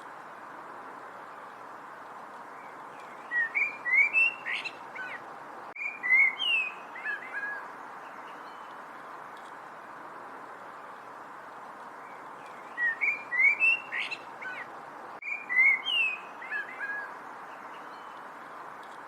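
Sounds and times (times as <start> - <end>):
steady background hiss: 0.0 - 19.0
songbird whistled notes: 3.0 - 5.2, 5.8 - 7.6, 12.5 - 17.1.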